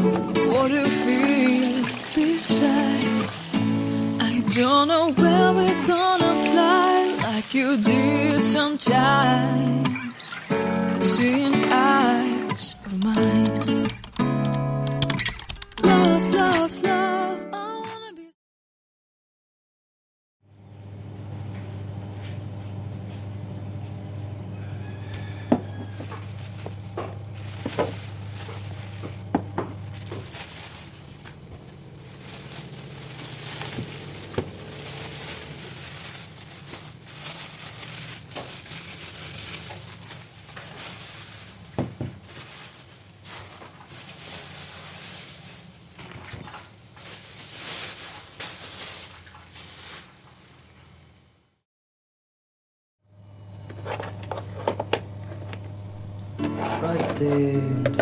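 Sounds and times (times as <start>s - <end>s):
uneven hissing: 0.0s - 8.2s.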